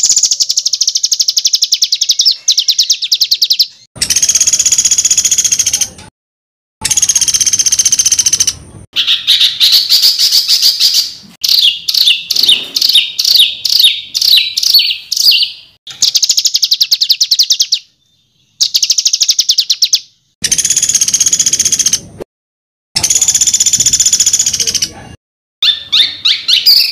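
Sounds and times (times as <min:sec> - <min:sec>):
songbird trills and chatter: 0:00.0 - 0:05.8, 0:11.4 - 0:21.9.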